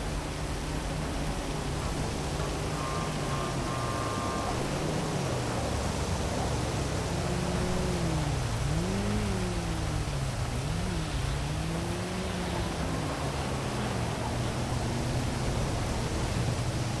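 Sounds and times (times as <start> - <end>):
city traffic: 0.0 - 17.0
vehicle engine humming: 0.0 - 17.0.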